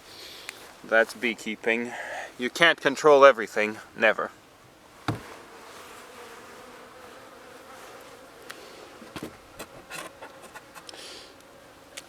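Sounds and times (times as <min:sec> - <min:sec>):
honeybees buzzing: 0:04.8 - 0:12.0
sharp knock: 0:05.1 - 0:05.4.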